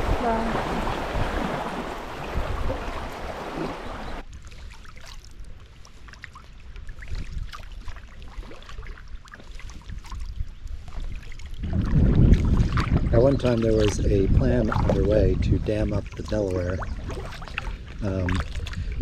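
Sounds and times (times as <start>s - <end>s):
low wind rumble: 0.0s - 4.2s, 9.8s - 19.0s
paddle splashes and drips: 0.0s - 15.2s, 15.8s - 19.0s
wind and water rushing: 0.0s - 19.0s.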